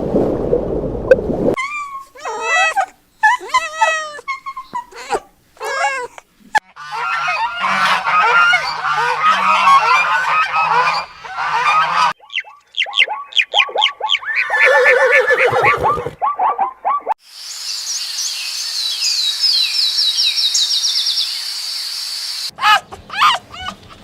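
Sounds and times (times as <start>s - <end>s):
birds honking: 6.6s - 15.7s
steady hiss with chirps: 17.2s - 22.5s.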